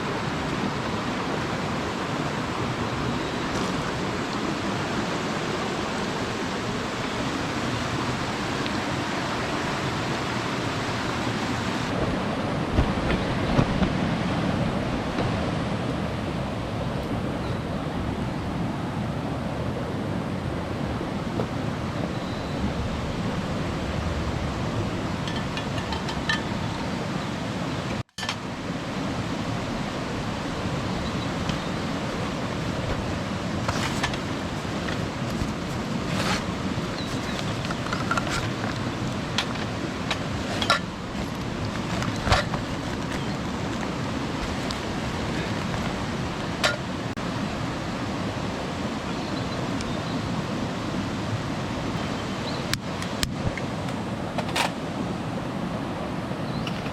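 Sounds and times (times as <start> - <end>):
stream rushing over rocks: 0.0 - 56.9.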